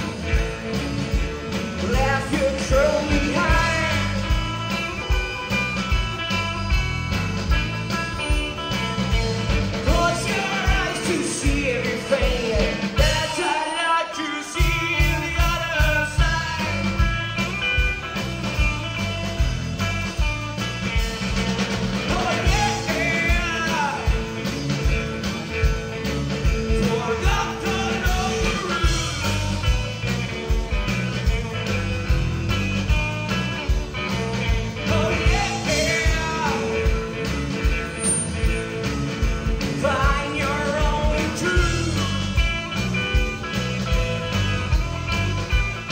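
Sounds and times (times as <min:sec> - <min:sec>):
bass guitar: 0:00.0 - 0:45.9
drums: 0:00.0 - 0:45.9
electric guitar: 0:00.0 - 0:45.9
person singing: 0:01.8 - 0:04.5, 0:09.8 - 0:17.1, 0:34.3 - 0:37.1, 0:39.6 - 0:42.2.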